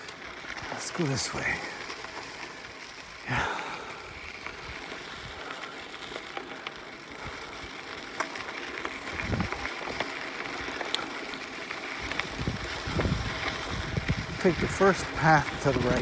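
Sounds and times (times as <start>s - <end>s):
bike clicks and rattles: 0.0s - 16.0s
bike tyres rolling on dirt: 0.0s - 16.0s
wind buffeting microphone: 9.0s - 9.7s, 12.0s - 16.0s.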